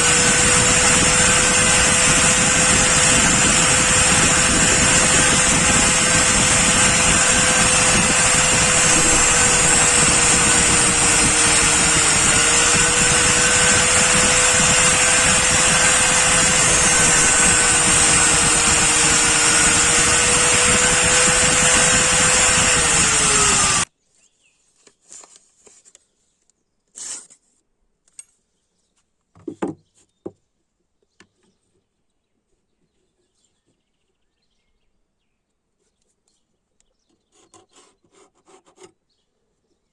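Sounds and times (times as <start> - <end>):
power tool whining on metal: 0.0 - 23.9.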